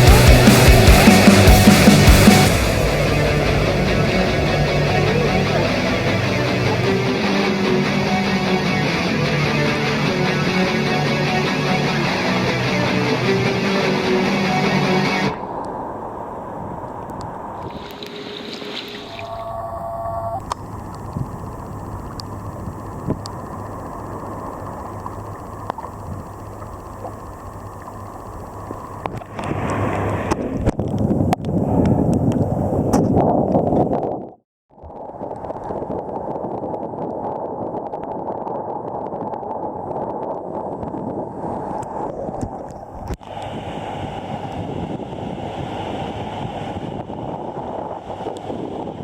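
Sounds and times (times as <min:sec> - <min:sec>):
wind buffeting microphone: 0:00.0 - 0:09.0, 0:15.3 - 0:19.0, 0:20.0 - 0:34.4, 0:35.4 - 0:49.0
surf and rushing water: 0:00.0 - 0:30.9, 0:41.0 - 0:49.0.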